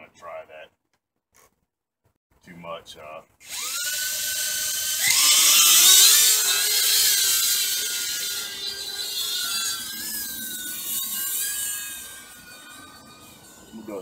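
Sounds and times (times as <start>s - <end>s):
drone motors whining: 3.4s - 14.0s.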